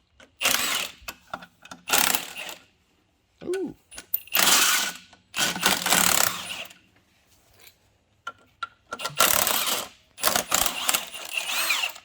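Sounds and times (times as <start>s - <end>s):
power tool loosening bolts: 0.2s - 2.6s, 3.9s - 6.8s, 8.9s - 12.0s.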